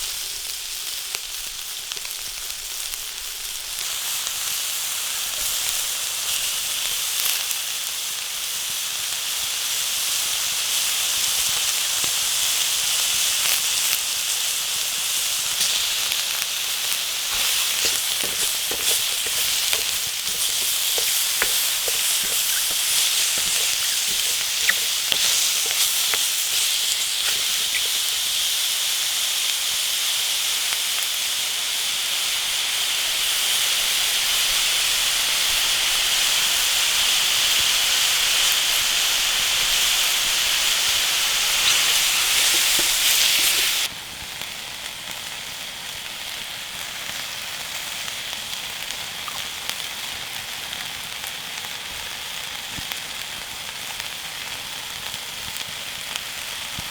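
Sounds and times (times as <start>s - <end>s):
food sizzling in a pan: 0.0s - 56.9s
wood fire crackling: 15.6s - 28.6s, 40.7s - 43.9s.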